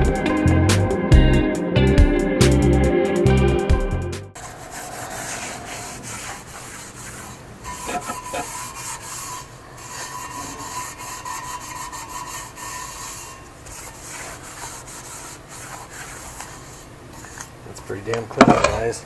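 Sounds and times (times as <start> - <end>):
rag scrubbing a surface: 4.4 - 18.1
faint squeak-like tone: 7.6 - 13.5.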